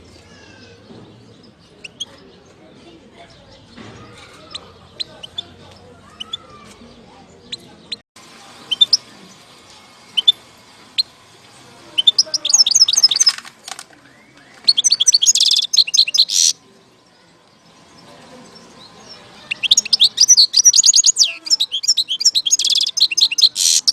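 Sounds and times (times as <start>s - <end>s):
goldfinch singing: 3.5s - 9.4s, 11.9s - 13.4s, 14.1s - 16.6s, 17.6s - 23.9s.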